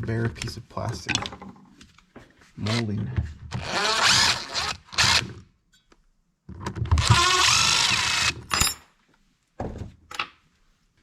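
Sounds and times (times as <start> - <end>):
power drill running: 3.6 - 5.3, 7.0 - 8.4.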